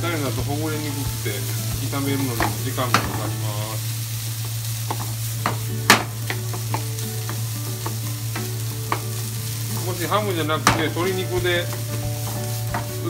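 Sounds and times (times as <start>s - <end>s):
food sizzling in frying pan: 0.0s - 13.0s
wooden spatula scraping a pan: 7.2s - 13.0s.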